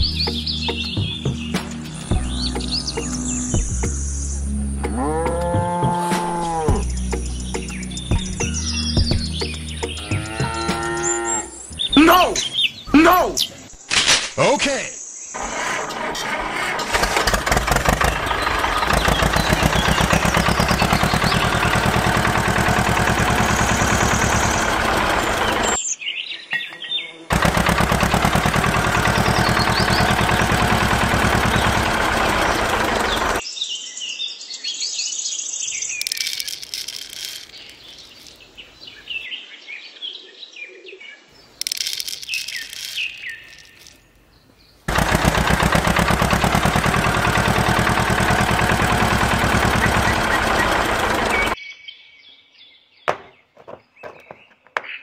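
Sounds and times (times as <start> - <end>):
birds chirping: 0.0 - 15.4, 16.3 - 55.0
tractor engine chugging: 15.4 - 25.8, 27.3 - 33.4, 44.9 - 51.6.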